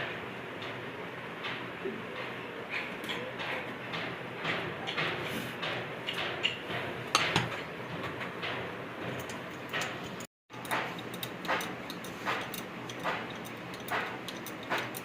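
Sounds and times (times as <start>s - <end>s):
hand tools clinking on metal: 9.2s - 15.0s.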